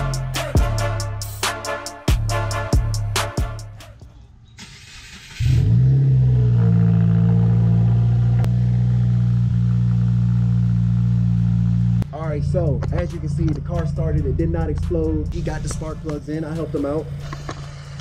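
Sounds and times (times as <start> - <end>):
car engine starting and idling: 4.5 - 18.0.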